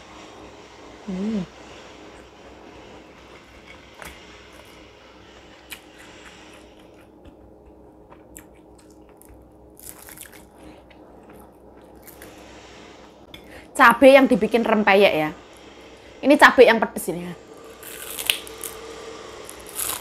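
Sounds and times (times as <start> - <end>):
low steady hum: 0.0 - 20.0
chewing and crunching: 5.7 - 12.3.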